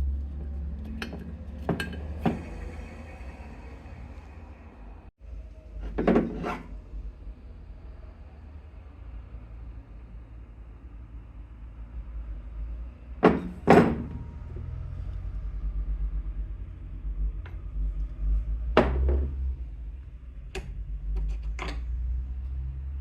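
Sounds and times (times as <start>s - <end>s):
tools knocking and clacking: 0.8s - 2.5s, 13.2s - 14.2s, 20.6s - 21.9s.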